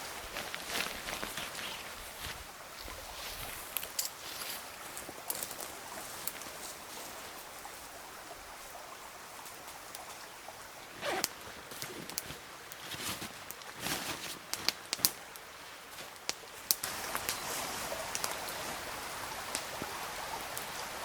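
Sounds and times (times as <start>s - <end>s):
river flowing: 0.0s - 21.0s
short rustle: 11.0s - 14.8s.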